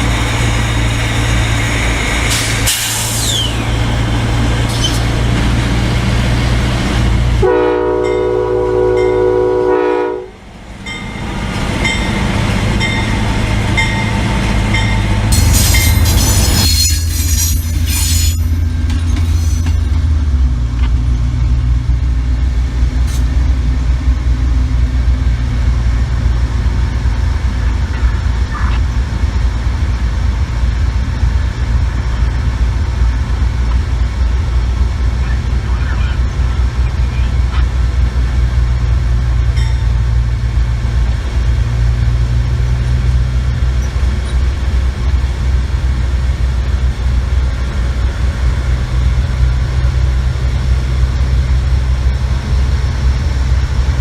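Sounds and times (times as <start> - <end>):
moving train rumble: 0.0 - 54.0
diesel locomotive horn blast: 7.4 - 10.4.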